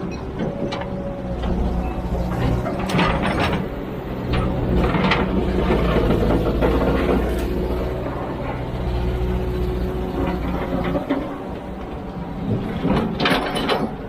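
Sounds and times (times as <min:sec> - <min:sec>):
metallic clanks and rattles: 0:00.0 - 0:09.0, 0:12.5 - 0:14.0
excavator diesel engine running: 0:00.0 - 0:14.0.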